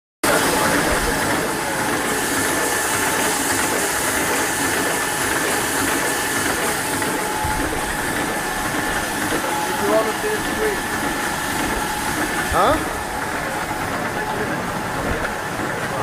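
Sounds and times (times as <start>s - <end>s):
filling machine hiss and clatter: 0.2s - 16.0s.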